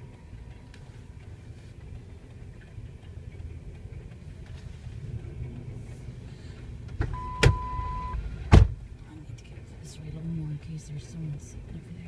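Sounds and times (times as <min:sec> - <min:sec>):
freight train rumbling past: 0:00.0 - 0:07.0
short beep: 0:07.1 - 0:08.2.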